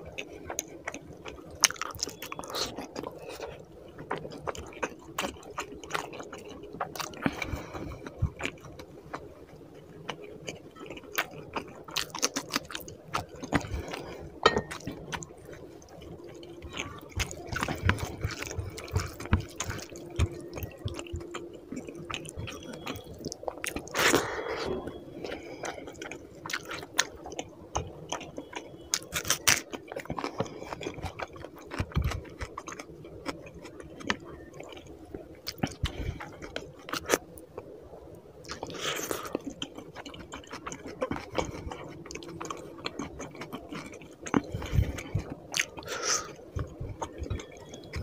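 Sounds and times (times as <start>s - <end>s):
wet chewing and lip smacks: 0.0s - 48.0s.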